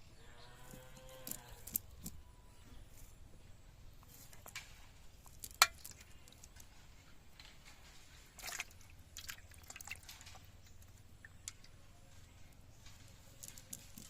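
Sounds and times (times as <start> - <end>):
water dripping and splashing: 8.1 - 11.8.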